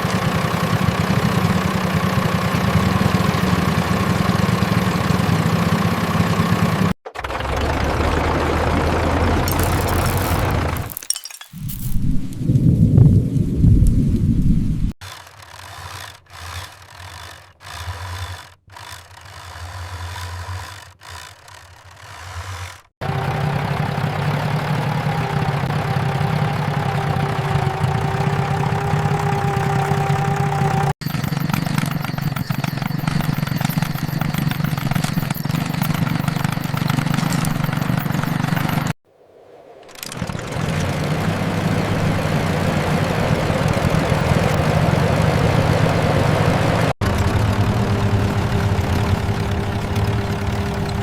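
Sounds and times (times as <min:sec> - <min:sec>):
vehicle engine running: 0:00.0 - 0:11.0, 0:23.0 - 0:39.0, 0:40.0 - 0:51.0
constant whine: 0:23.0 - 0:51.0.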